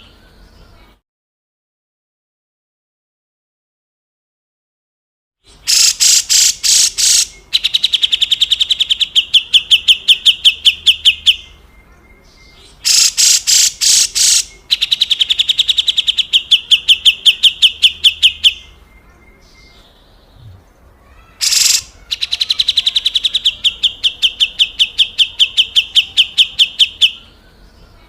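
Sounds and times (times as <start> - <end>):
bulbul rasping rattling call: 5.7 - 7.4, 12.8 - 15.9, 21.4 - 24.9.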